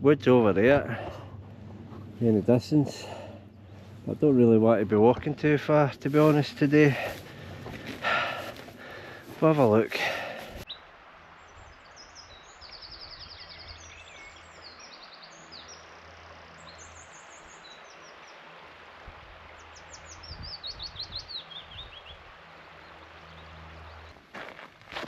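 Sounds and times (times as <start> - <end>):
faint low background rumble: 0.0 - 9.4
songbirds chirping and trilling: 0.0 - 24.6.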